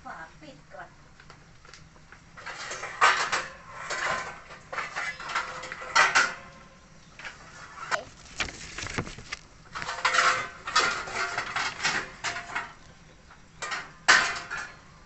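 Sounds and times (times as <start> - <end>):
metal cookware clattering: 2.4 - 6.5, 9.8 - 12.8, 13.6 - 14.8.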